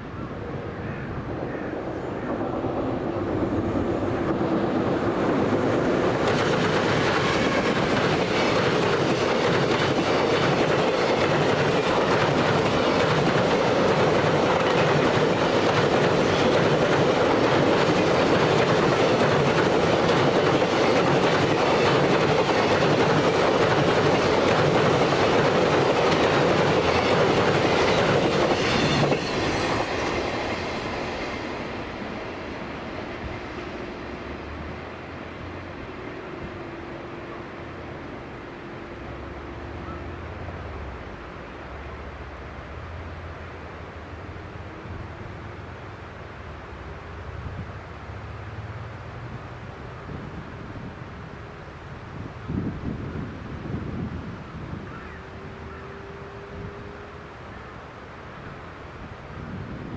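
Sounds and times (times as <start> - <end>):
freight train wheels roaring: 0.0 - 59.9
rail-joint clickety-clack: 1.4 - 33.5.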